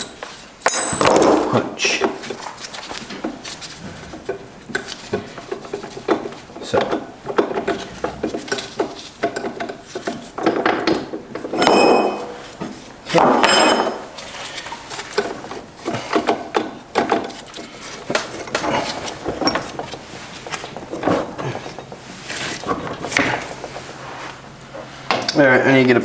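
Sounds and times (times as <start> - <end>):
metallic clinks: 0.0 - 1.5.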